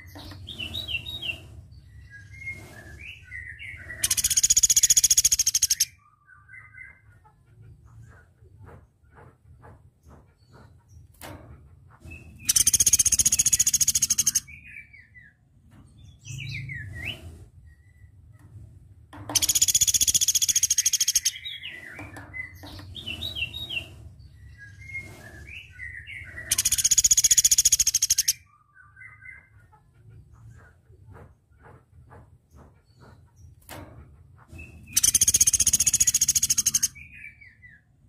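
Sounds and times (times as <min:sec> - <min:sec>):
bird high rapid trills: 0:26.5 - 0:28.4.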